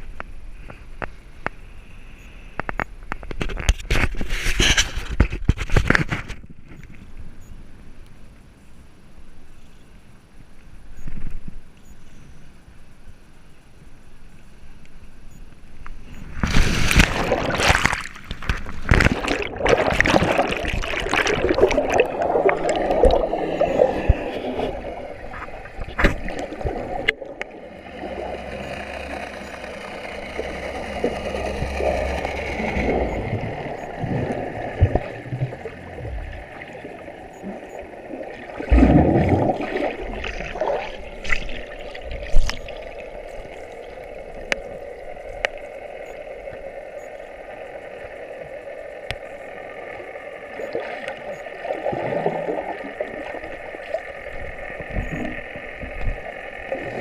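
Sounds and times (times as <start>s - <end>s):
water gurgling around boat: 16.0s - 57.0s
splashes and knocks: 16.4s - 23.2s, 24.0s - 27.2s.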